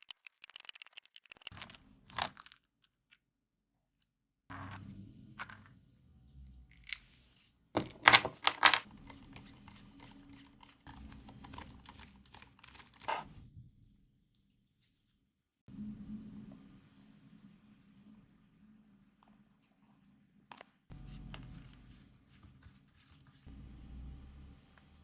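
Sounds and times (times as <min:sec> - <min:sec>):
metal parts clicking and clinking: 0:01.4 - 0:03.2, 0:06.7 - 0:07.1, 0:07.8 - 0:13.2.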